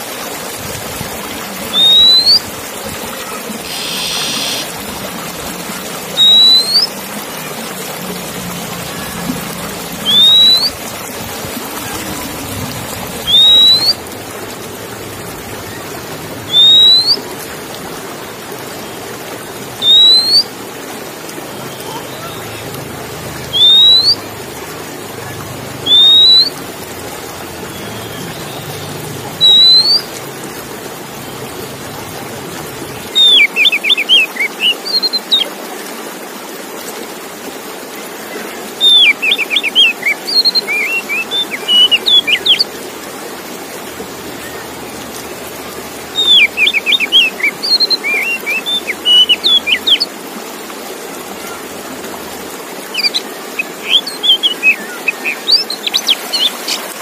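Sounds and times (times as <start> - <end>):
bird whistling and chattering: 1.7 - 2.4, 3.6 - 4.7, 6.1 - 7.0, 10.0 - 10.8, 13.2 - 14.0, 16.5 - 17.2, 19.8 - 20.5, 23.5 - 24.2, 25.8 - 26.6, 29.4 - 30.1, 33.2 - 35.5, 38.8 - 42.6, 46.1 - 50.1, 52.9 - 56.8.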